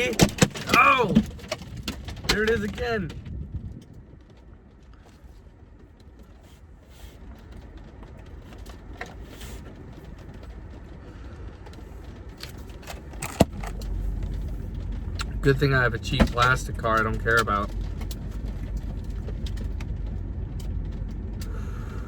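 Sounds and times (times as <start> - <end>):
loud ice hit on car: 0.0 - 2.6
ice ticking on car: 0.0 - 22.0
low steady rumble: 0.0 - 22.0.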